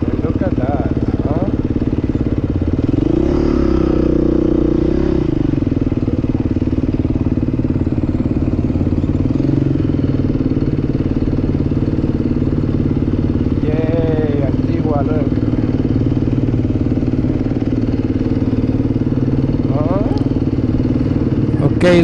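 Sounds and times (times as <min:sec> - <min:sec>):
dirt bike engine revving: 0:17.7 - 0:22.0.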